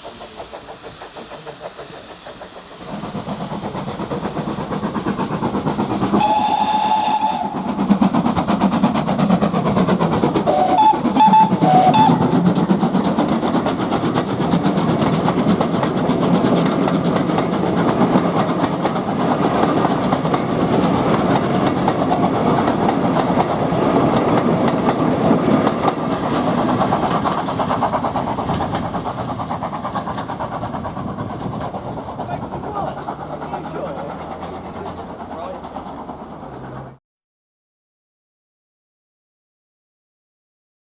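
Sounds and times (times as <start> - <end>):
train wheels clattering on rails: 0.0 - 37.0
steam locomotive whistle: 6.1 - 7.9, 10.4 - 13.0.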